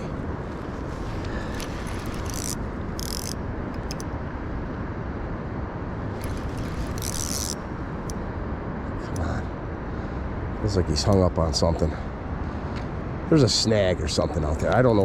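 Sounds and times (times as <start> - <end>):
steady low rumble: 0.0 - 15.0
fishing reel clicking: 1.5 - 4.0, 6.2 - 8.2.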